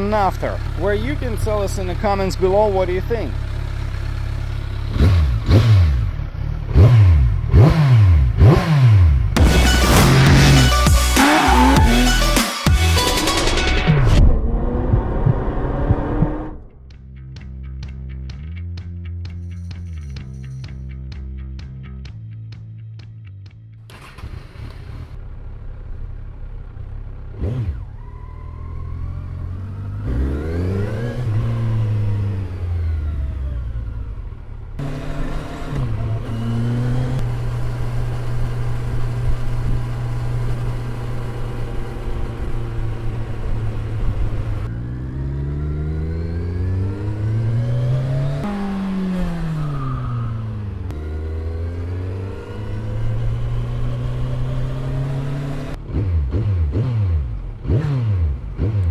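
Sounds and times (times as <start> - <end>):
motorcycle engine idling: 0.0 - 7.6, 24.8 - 30.1.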